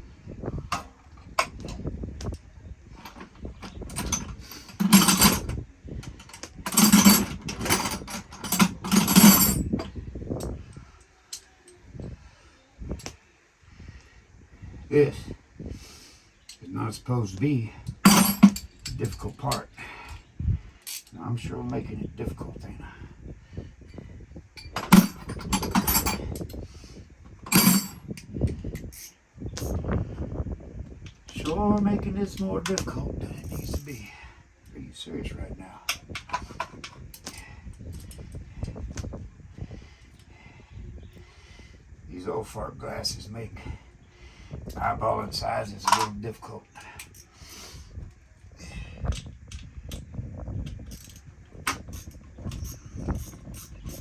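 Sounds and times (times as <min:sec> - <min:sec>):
metal tools clattering and scraping: 0:03.0 - 0:11.8, 0:17.8 - 0:20.2, 0:20.8 - 0:21.2, 0:24.6 - 0:26.6, 0:27.3 - 0:29.8, 0:32.4 - 0:34.2, 0:35.9 - 0:38.7, 0:45.7 - 0:47.5, 0:50.6 - 0:54.0
sharp metal clank: 0:18.0 - 0:18.6, 0:27.5 - 0:28.0.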